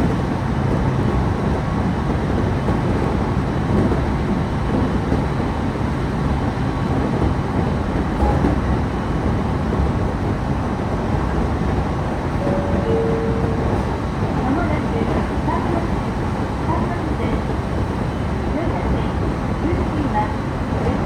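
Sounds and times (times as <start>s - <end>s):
train wheels rumbling on rails: 0.0s - 21.0s
short steady tones: 12.4s - 14.4s.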